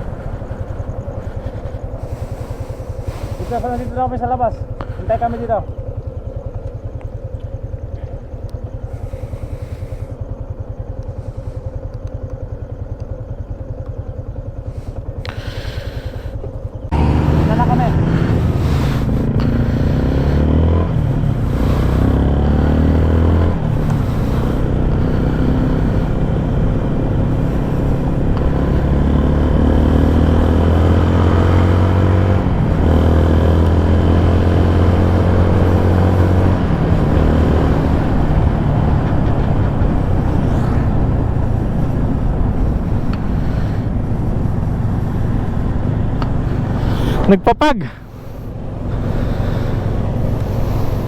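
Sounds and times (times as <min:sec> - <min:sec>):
engine revving: 0:00.0 - 0:06.2, 0:14.6 - 0:51.0
vehicle engines running: 0:00.0 - 0:51.0.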